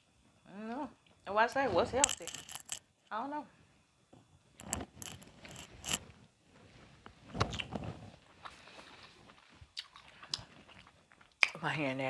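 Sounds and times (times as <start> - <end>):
moist chewing with mouth clicks: 8.4 - 11.6.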